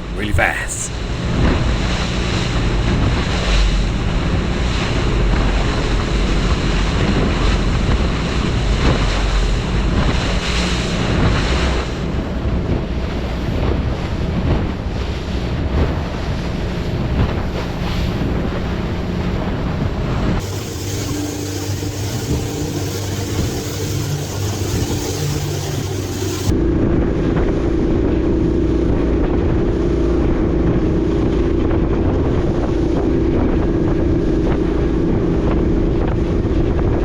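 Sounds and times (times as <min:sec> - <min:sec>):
boat motor droning: 0:20.4 - 0:26.5.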